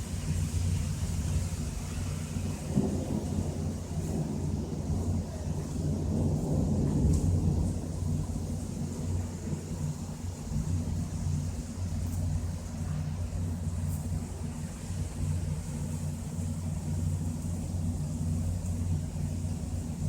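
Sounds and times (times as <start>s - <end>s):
distant thunder rumbling: 2.3s - 10.0s.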